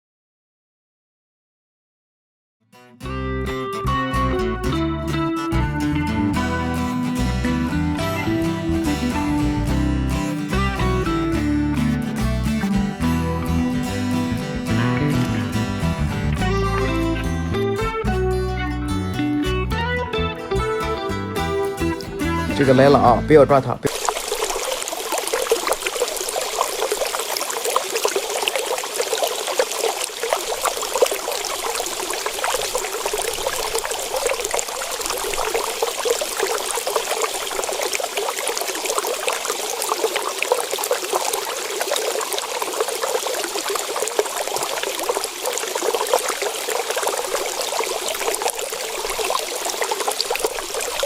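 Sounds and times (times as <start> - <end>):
water running and splashing: 23.9 - 51.0.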